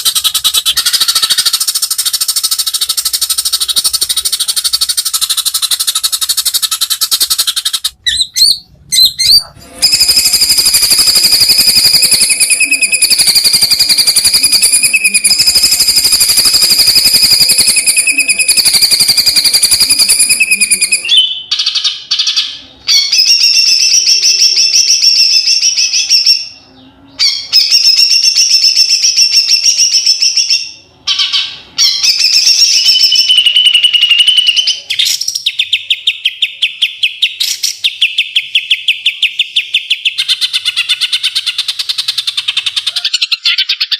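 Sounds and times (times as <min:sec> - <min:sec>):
bird singing rapid trills: 0:00.0 - 0:21.5.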